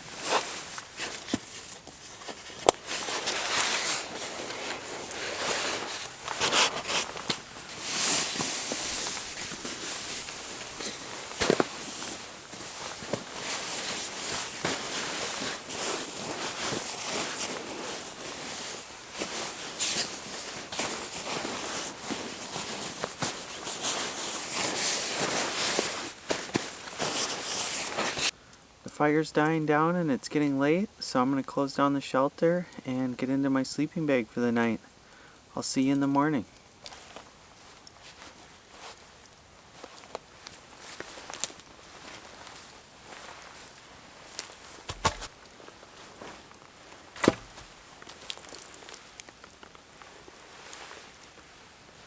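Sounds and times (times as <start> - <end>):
campfire crackling and popping: 46.5 - 50.1.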